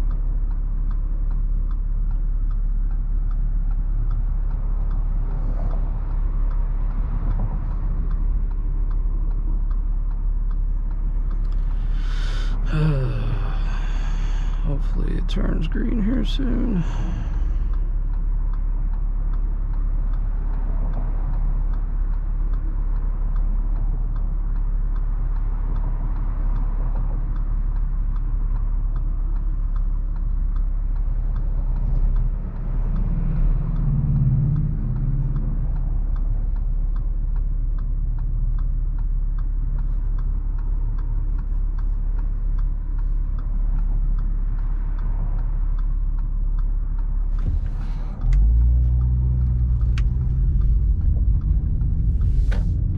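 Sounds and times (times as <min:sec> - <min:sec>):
car engine idling: 0:08.4 - 0:19.8, 0:46.0 - 0:52.9
turn-signal relay ticking: 0:13.3 - 0:52.9.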